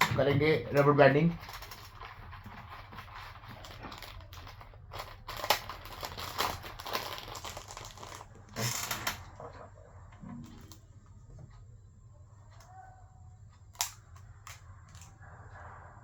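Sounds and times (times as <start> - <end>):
rubber bands rustling: 0.0 - 9.6.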